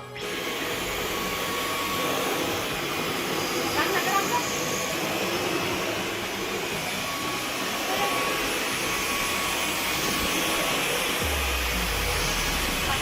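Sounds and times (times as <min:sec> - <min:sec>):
stick vacuum running: 0:00.0 - 0:13.0
low rumble: 0:11.2 - 0:13.0.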